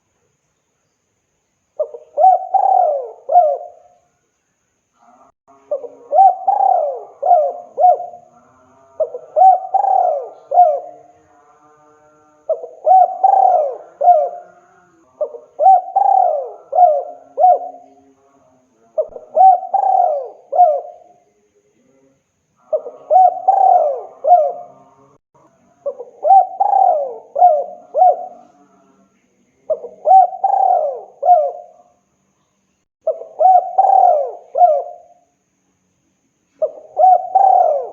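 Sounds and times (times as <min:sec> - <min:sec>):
dove cooing: 0:01.8 - 0:03.9, 0:05.6 - 0:08.3, 0:09.0 - 0:11.1, 0:12.5 - 0:18.0, 0:19.0 - 0:21.2, 0:22.6 - 0:24.8, 0:25.8 - 0:28.6, 0:29.7 - 0:31.8, 0:33.0 - 0:35.2, 0:36.6 - 0:37.9.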